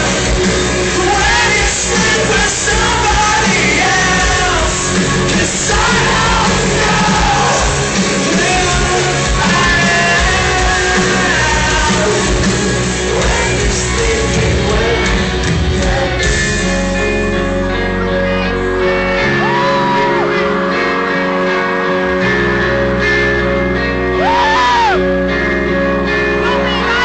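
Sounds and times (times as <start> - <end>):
person singing: 0.0 - 22.8
live rock band: 0.0 - 27.0
crowd shouting: 18.0 - 22.1.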